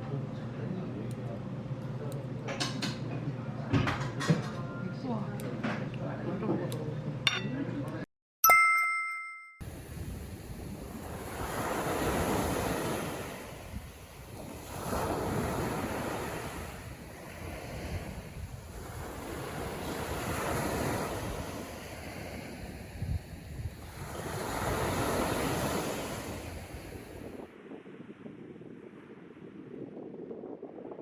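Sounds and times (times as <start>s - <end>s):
sea waves breaking: 9.6s - 30.1s
wind buffeting microphone: 9.7s - 31.0s.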